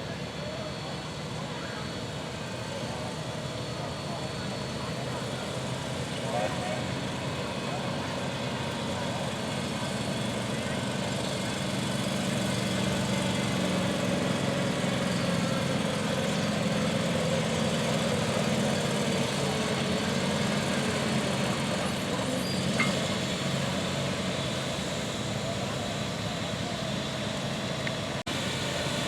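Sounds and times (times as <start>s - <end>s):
engine running steadily: 0.0s - 29.0s.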